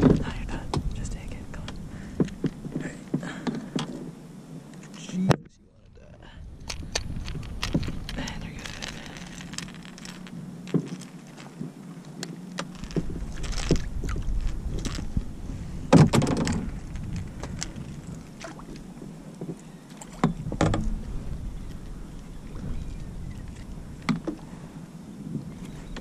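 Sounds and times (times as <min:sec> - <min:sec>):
wind rumble on microphone: 0:00.0 - 0:26.0
knocks and clatter on plastic kayak: 0:15.9 - 0:17.8, 0:18.4 - 0:21.3.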